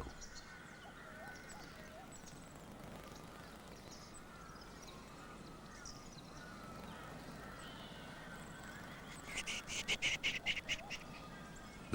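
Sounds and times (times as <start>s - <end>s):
high animal chirps: 9.2s - 11.1s.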